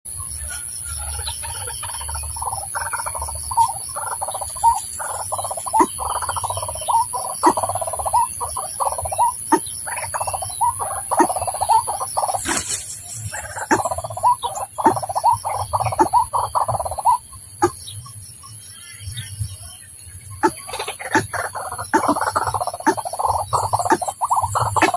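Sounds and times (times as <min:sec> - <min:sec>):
bird calling with croaking notes: 0:00.1 - 0:24.9.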